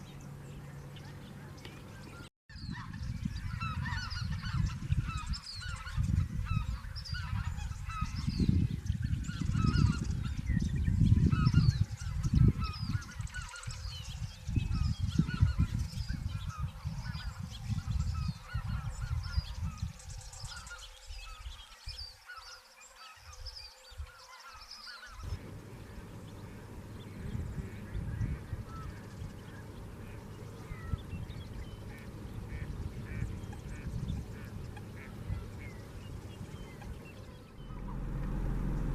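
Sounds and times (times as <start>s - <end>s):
geese honking: 0.0s - 8.4s, 24.3s - 38.9s
wind buffeting microphone: 0.0s - 22.0s, 25.2s - 38.9s.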